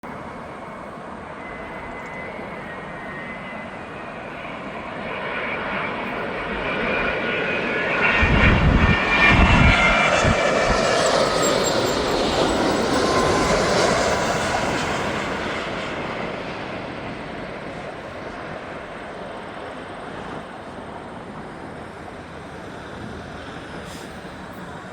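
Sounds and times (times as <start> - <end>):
high engine whine: 0.0 - 24.9
jet airliner flying over: 0.0 - 24.9.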